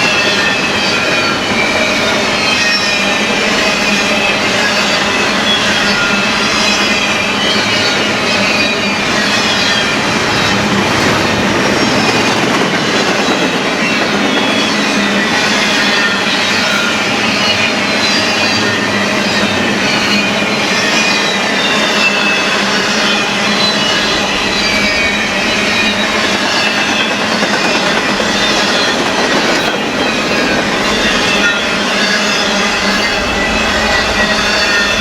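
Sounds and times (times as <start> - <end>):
freight train cars rumbling past: 0.0 - 35.0
train wheels squealing: 0.0 - 35.0.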